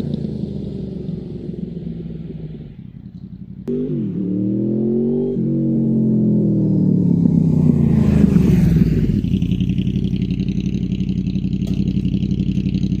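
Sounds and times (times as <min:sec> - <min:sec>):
motorcycle engine idling: 0:00.0 - 0:04.8, 0:05.8 - 0:13.0.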